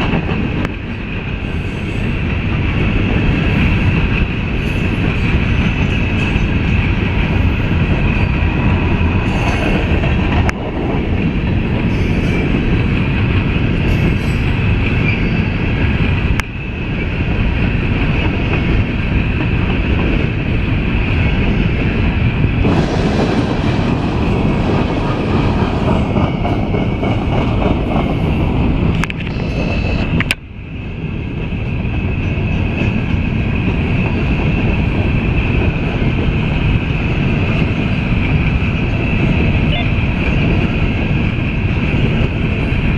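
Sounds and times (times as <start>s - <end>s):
train cars rumbling past: 0.0s - 42.9s
wheel squeal: 13.9s - 15.6s.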